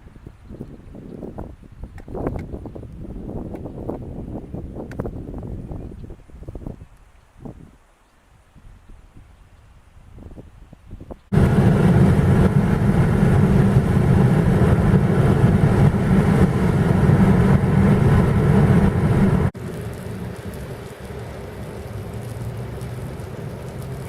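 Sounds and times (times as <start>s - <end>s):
car running noise: 11.3s - 24.0s
heavy rain on a car: 11.4s - 24.0s.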